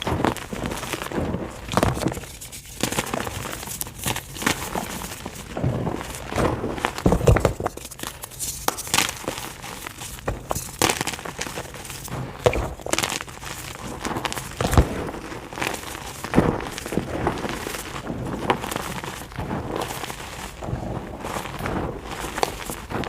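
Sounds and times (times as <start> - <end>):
chalk crunching by hand: 0.0 - 18.0.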